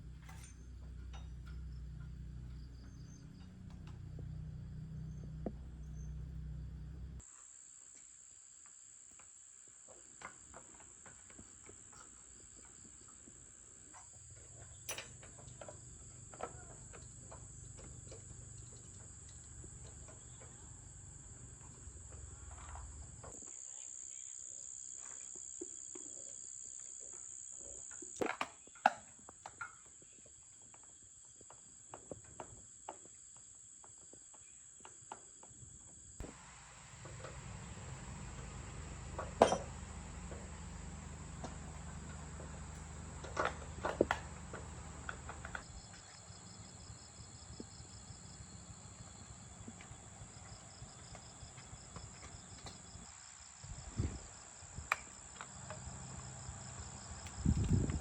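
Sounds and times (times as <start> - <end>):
insects chirring: 0.5 - 58.0
low hum: 36.2 - 45.8
sharp clicks and knocks: 37.0 - 45.7.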